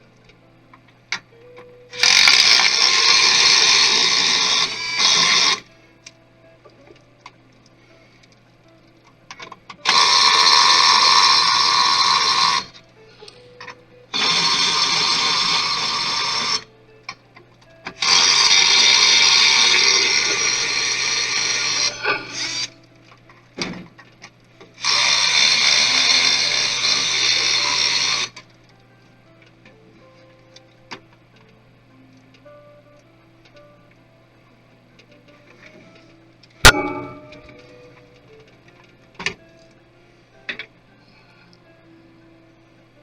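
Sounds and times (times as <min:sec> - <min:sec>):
electric screwdriver motor: 0:01.9 - 0:05.7, 0:09.8 - 0:12.8, 0:14.1 - 0:16.7, 0:18.0 - 0:22.8, 0:24.8 - 0:28.4.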